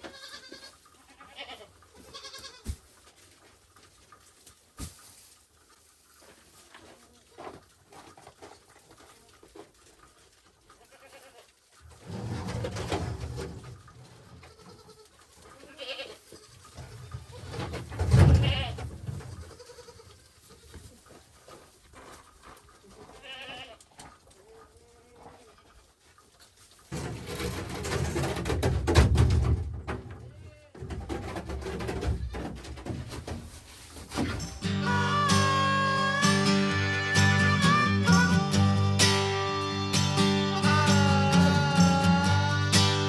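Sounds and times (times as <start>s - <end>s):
goats bleating: 0.0s - 2.7s, 10.8s - 11.5s, 14.4s - 17.0s, 18.3s - 20.8s, 23.0s - 23.8s, 34.6s - 43.0s.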